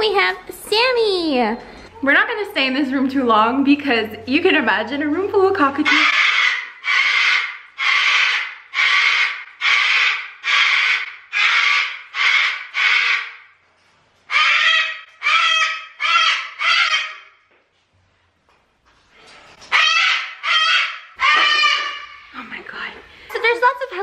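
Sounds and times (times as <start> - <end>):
cockatoos screeching: 5.9 - 13.4, 14.3 - 17.4, 19.7 - 22.4.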